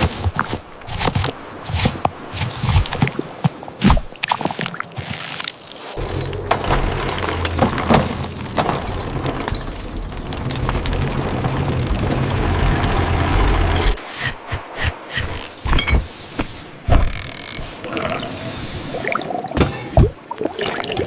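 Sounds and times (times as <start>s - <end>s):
crackles and splashy clicks: 0.0s - 14.6s.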